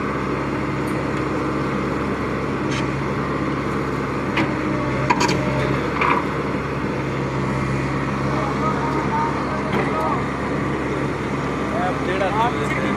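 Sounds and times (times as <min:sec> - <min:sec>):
excavator diesel engine running: 0:00.0 - 0:12.9.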